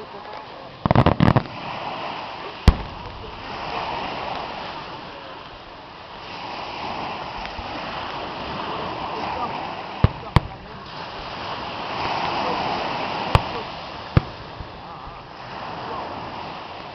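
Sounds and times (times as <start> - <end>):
firework bang: 0.9 - 1.6, 2.7 - 4.5, 13.2 - 14.8.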